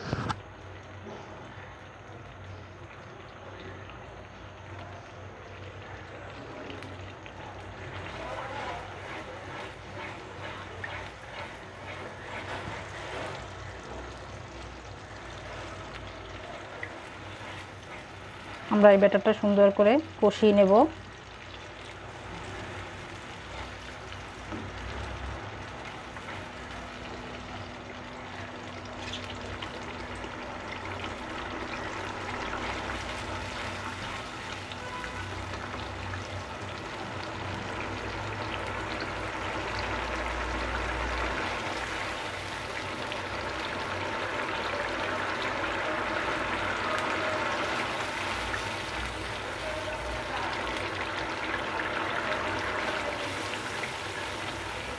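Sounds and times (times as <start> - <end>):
paste sizzling in hot oil: 5.8 - 54.9
spatula stirring in a pan: 7.3 - 19.1, 21.0 - 27.8, 30.8 - 37.5, 38.1 - 54.9.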